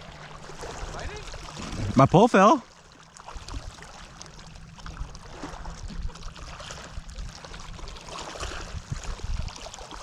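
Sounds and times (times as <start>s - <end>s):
water lapping against boat hull: 0.0s - 10.0s
wind buffeting microphone: 4.8s - 10.0s.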